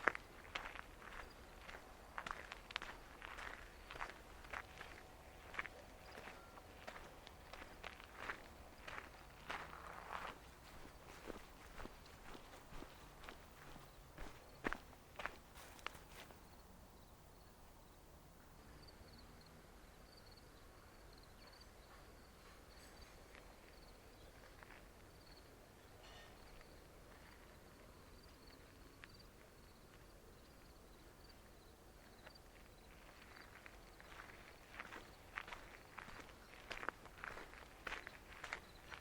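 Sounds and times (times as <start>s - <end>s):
crickets chirping: 18.6s - 24.0s, 26.4s - 39.0s.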